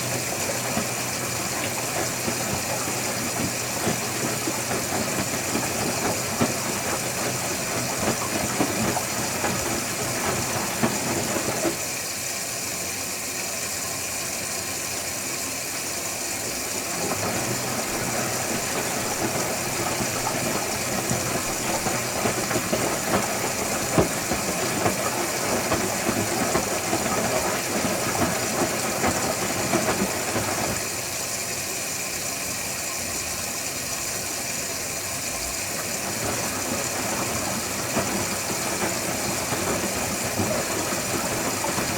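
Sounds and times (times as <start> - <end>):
washing machine drum tumbling: 0.0 - 11.9, 16.6 - 31.1, 35.5 - 41.9
washing machine hum: 0.0 - 41.9.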